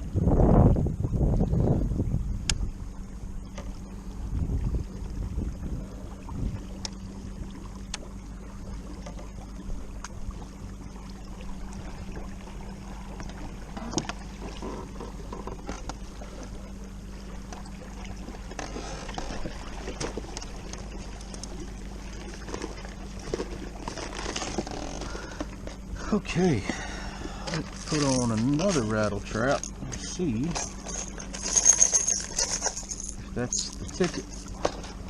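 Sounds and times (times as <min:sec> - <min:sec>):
wind noise: 0:00.0 - 0:02.8, 0:04.2 - 0:06.7
steady low hum: 0:00.0 - 0:35.0
water noise: 0:00.0 - 0:35.0.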